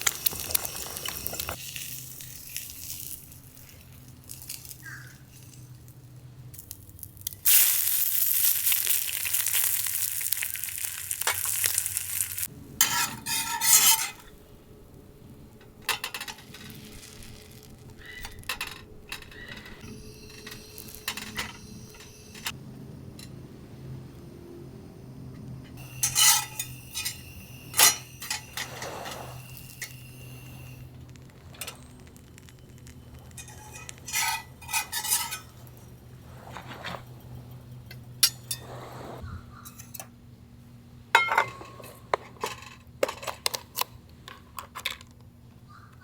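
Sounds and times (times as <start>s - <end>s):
metal cookware clinking: 12.8s - 14.3s, 18.4s - 22.6s, 25.8s - 30.6s, 33.3s - 35.9s, 41.1s - 43.5s
steady low hum: 17.6s - 42.8s.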